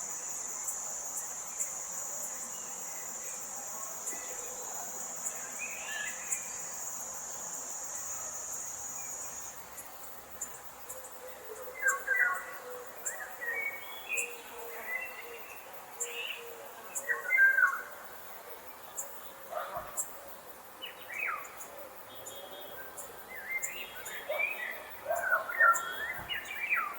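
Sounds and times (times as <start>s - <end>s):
high insect drone: 0.0s - 26.9s
birds calling: 23.0s - 26.9s.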